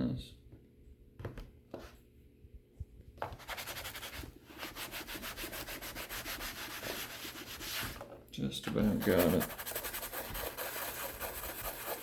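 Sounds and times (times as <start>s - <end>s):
hand scraper scraping plastic: 8.8s - 12.0s.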